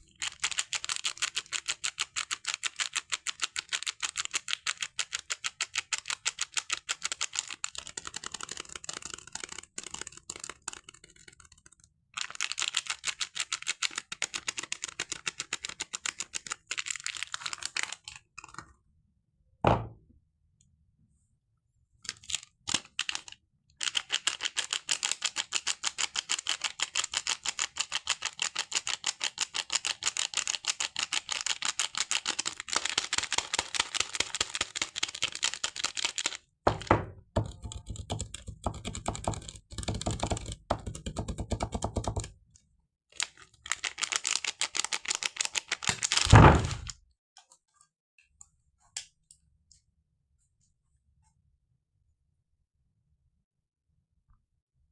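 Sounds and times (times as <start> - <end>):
soap wrapping clicking: 15.2 - 18.6, 43.2 - 46.9.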